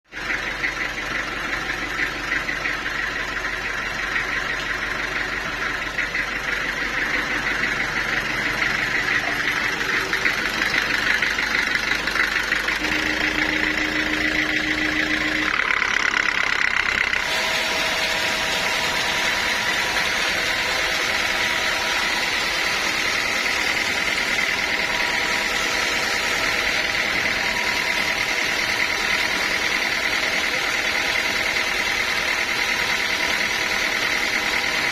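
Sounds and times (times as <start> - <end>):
sawmill machinery humming: 0.1 - 34.9.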